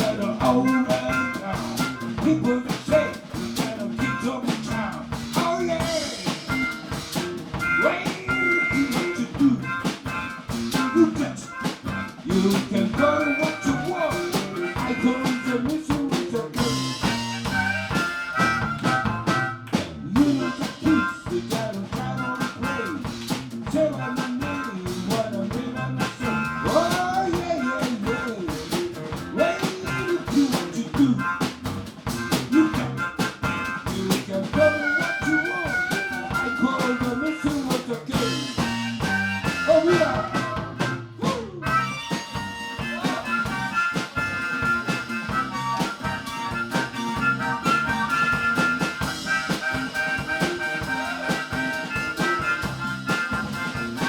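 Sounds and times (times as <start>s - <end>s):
drum kit beat: 0.0s - 54.0s
guitar: 0.0s - 54.0s
wavering lead melody: 41.7s - 54.0s.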